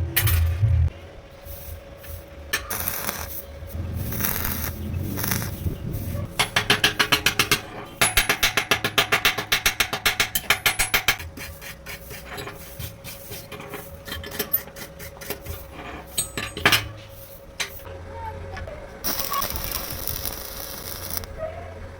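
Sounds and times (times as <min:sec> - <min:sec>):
rapid metal-on-metal strokes: 0:01.4 - 0:17.9.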